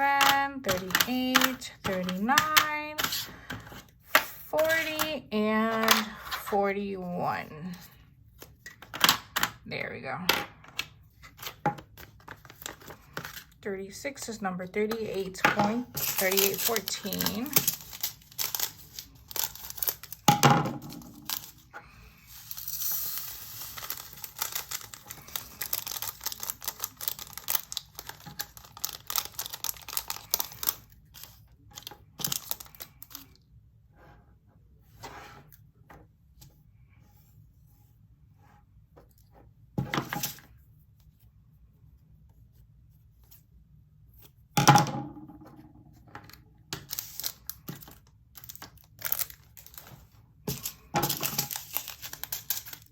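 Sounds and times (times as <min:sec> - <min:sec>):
plastic bags crinkling: 0:15.8 - 0:20.4, 0:21.0 - 0:33.2, 0:46.8 - 0:52.9.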